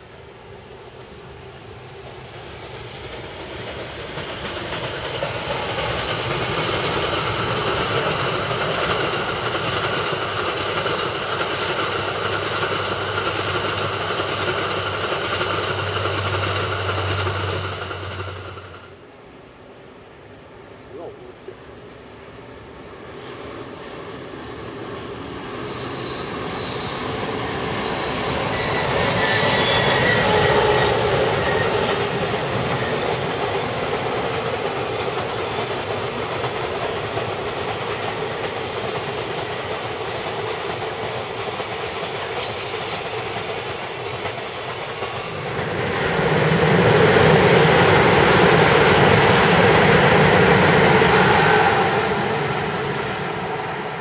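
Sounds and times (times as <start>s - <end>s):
train running on rails: 0.0s - 54.0s
steel wheels squealing: 13.4s - 18.9s, 25.7s - 33.5s, 36.2s - 46.9s, 53.2s - 54.0s.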